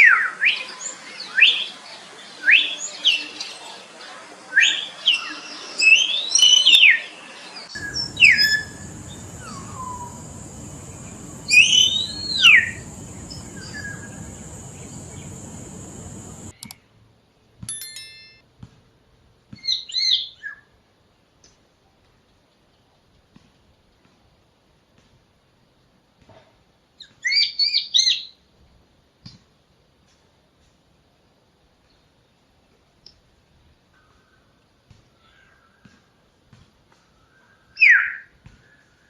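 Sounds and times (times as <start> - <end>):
myna whistled calls: 7.7 - 16.7
steady high hiss: 7.7 - 16.8.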